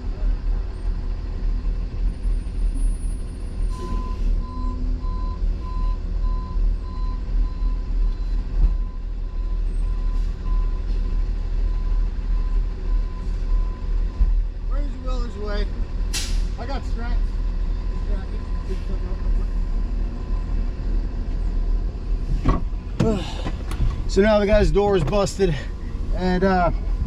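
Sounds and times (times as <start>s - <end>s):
truck engine idling: 0.0s - 27.0s.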